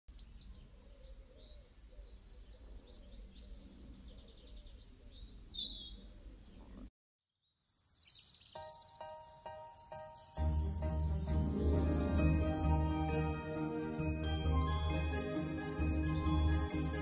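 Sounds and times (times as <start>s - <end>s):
birds chirping and singing: 0.1s - 6.9s, 7.8s - 15.6s
gentle music: 8.6s - 17.0s.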